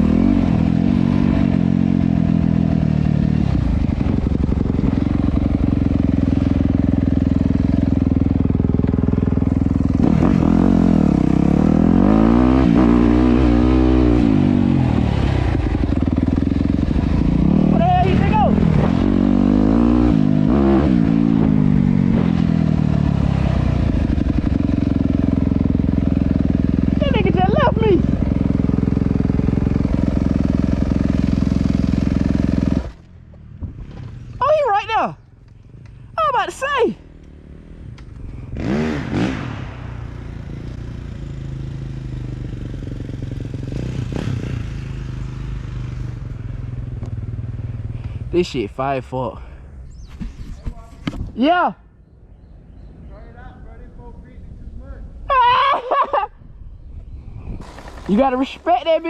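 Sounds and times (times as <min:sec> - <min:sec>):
dirt bike engine revving: 0:00.0 - 0:33.0, 0:37.0 - 0:46.8, 0:57.6 - 0:59.0.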